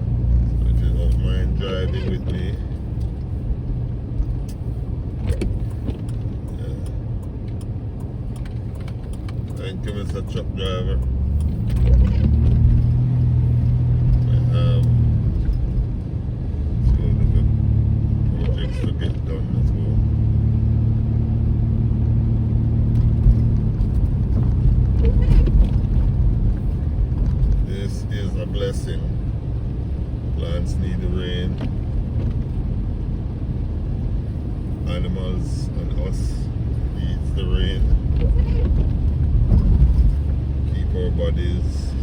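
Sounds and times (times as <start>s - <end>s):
car engine rumble: 0.0s - 42.0s
road noise inside car: 0.0s - 42.0s
faint clicks: 5.4s - 9.6s.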